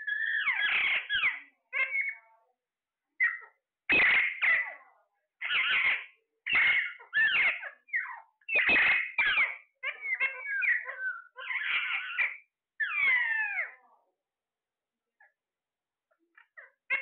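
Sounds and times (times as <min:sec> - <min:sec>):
parrot harsh calls: 0:00.0 - 0:02.3, 0:03.2 - 0:04.8, 0:05.4 - 0:13.8, 0:16.3 - 0:17.0.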